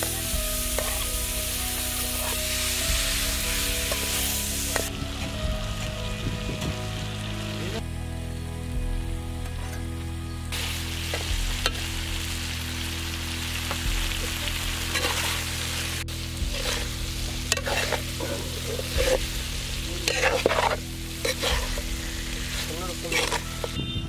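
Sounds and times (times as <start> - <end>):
chicken sizzling in a pan: 0.0 - 5.0, 10.5 - 23.8
spatula scraping metal pan: 0.7 - 1.1, 16.4 - 19.4, 20.0 - 23.8.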